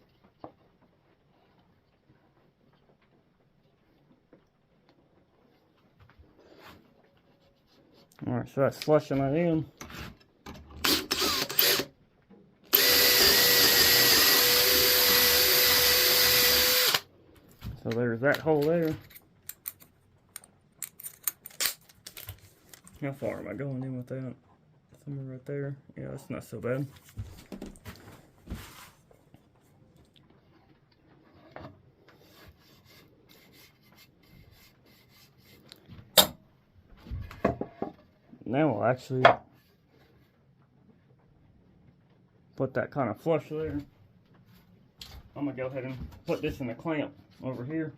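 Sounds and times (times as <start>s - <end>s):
electric drill whining: 10.8s - 11.9s, 12.7s - 17.1s
rubbing handling sounds: 20.8s - 23.5s, 26.6s - 36.1s
hand tool scraping wood: 31.2s - 35.9s.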